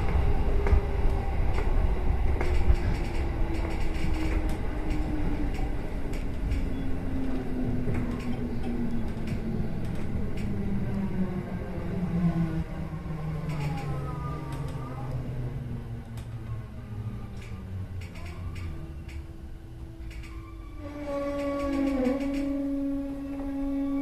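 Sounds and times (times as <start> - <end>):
wheels rumbling on rails: 0.0 - 24.0.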